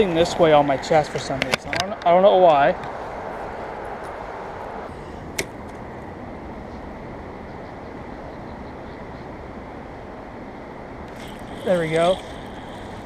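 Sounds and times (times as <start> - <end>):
flowing creek water: 11.1 - 13.0.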